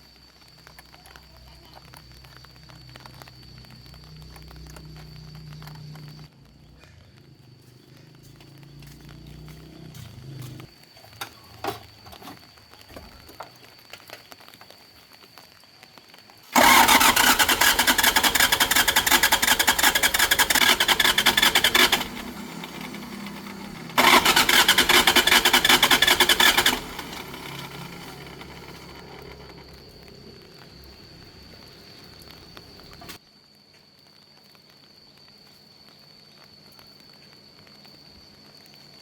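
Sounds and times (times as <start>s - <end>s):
engine cranking: 16.5s - 30.3s.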